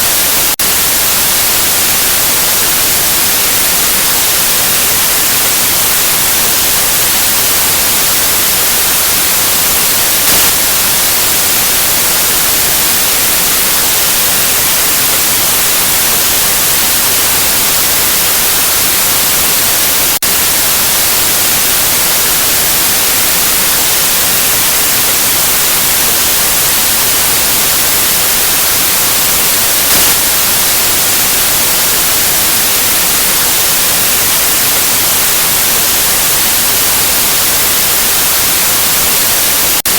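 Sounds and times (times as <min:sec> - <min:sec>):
loud white noise hiss: 0:00.0 - 0:39.9
brief click: 0:10.3 - 0:10.6.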